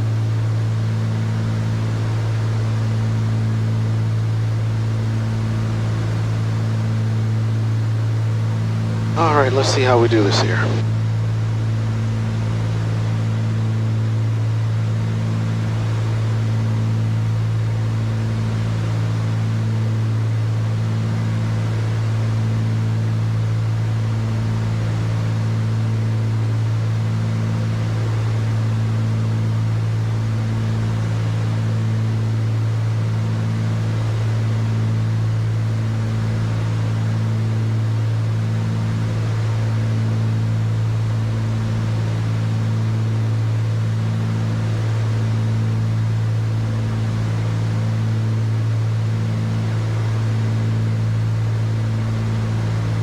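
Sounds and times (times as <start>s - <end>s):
aircraft piston engines droning: 8.8s - 10.8s.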